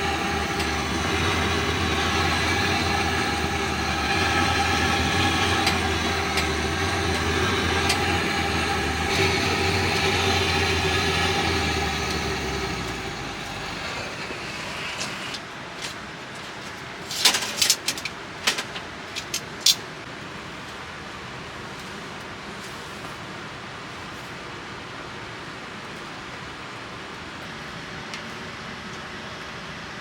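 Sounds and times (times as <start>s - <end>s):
steady high tones: 0.0s - 15.4s
motor humming: 0.0s - 19.7s.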